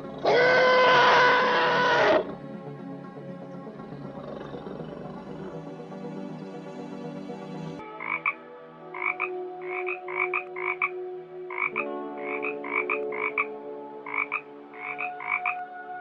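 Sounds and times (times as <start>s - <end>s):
animal calling in sharp notes: 0.2s - 2.3s.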